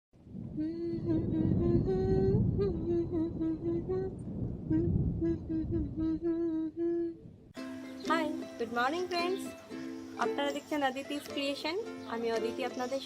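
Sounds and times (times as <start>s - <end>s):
steady low rumbling noise: 0.2s - 7.6s
person singing wordless tune: 0.5s - 11.4s.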